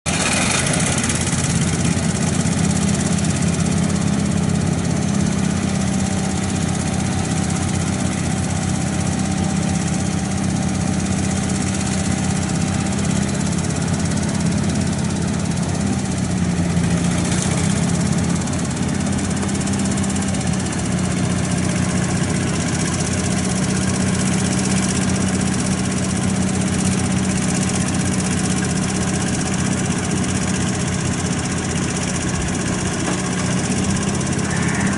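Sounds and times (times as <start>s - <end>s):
truck engine idling: 0.1s - 34.9s.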